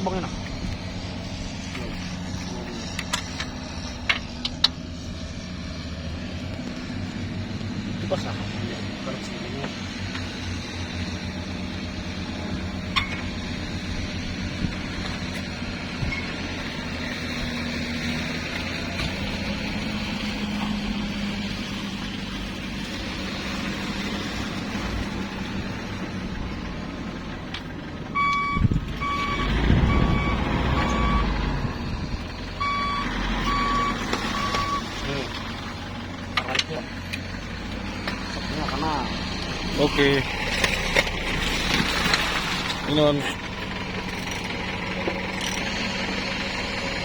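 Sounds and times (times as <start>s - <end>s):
vehicle engine running: 0.0s - 47.0s
reversing alarm beeping: 28.2s - 31.8s, 32.6s - 34.9s.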